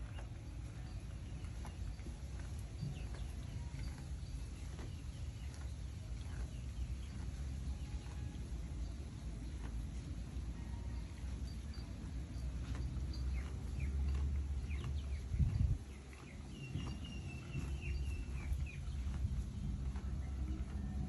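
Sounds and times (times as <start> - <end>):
small birds chirping: 0.0 - 20.9
low rumble of wind: 0.0 - 21.0.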